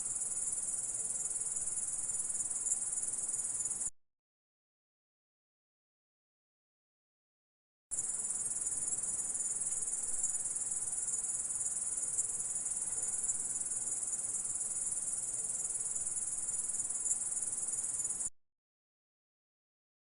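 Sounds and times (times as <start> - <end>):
cricket high-pitched trill: 0.0 - 3.9, 7.9 - 18.3.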